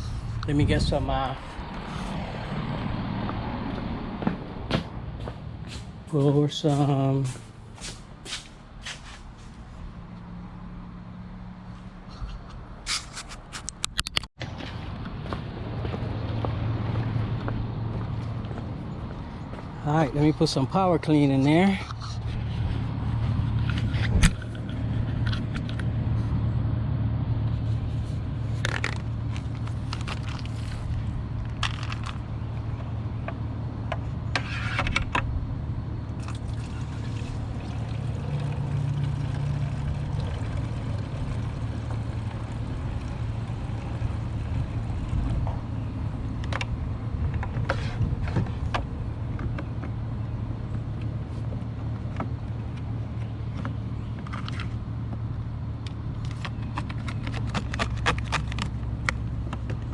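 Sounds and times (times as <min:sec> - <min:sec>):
low motor hum: 0:22.0 - 0:59.9
liquid pouring: 0:36.2 - 0:45.2.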